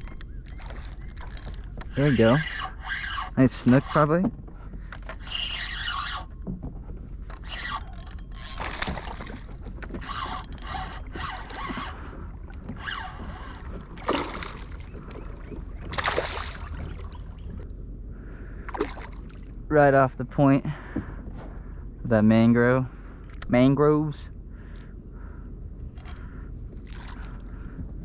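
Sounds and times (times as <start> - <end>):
water splashing and sloshing: 0.0 - 17.7, 18.4 - 19.7, 26.0 - 28.0
steady low rumble: 8.2 - 28.0.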